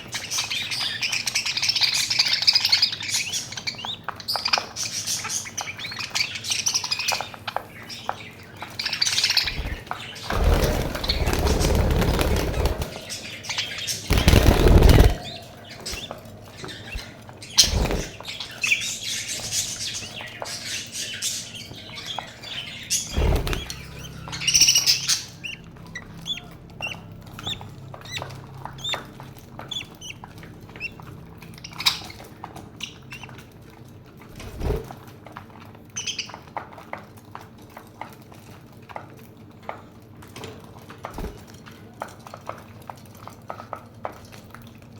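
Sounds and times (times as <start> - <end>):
budgerigars chirping and chattering: 0.0 - 33.6, 35.9 - 36.4
loud rustling: 9.4 - 13.3, 13.9 - 16.0.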